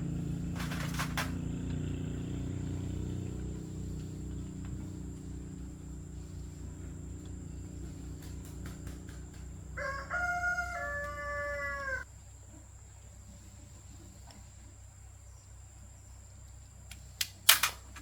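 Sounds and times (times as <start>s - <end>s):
steady low hum: 0.0s - 18.0s
rooster crowing: 7.6s - 12.1s.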